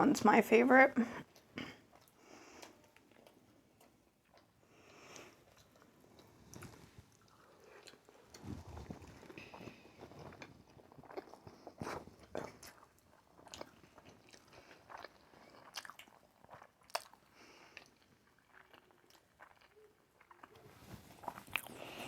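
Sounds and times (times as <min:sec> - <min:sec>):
chewing and wet mouth sounds: 0:01.2 - 0:22.0.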